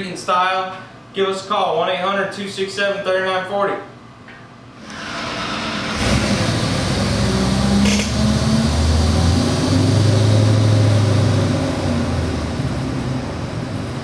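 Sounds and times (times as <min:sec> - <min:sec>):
engine running on dyno: 0:04.9 - 0:14.0.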